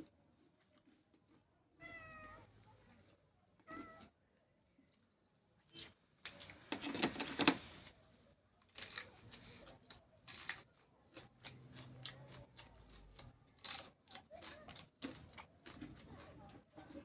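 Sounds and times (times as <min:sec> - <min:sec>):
crunching raw vegetables: 0:08.6 - 0:17.0.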